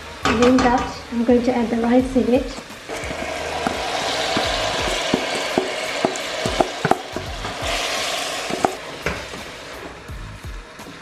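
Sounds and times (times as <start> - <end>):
rice sizzling in hot oil: 0.0 - 11.0
spoon scraping and knocking pot: 2.6 - 9.5.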